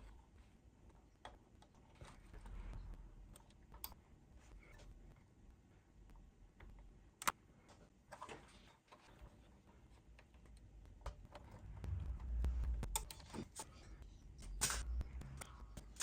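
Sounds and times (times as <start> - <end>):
low handling bumps: 10.9 - 13.5.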